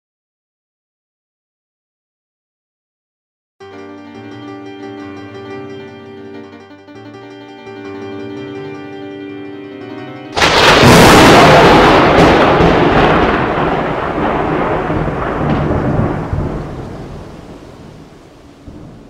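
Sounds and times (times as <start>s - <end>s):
sustained musical notes: 3.6s - 13.6s
thunderclap rumbling: 10.4s - 19.0s.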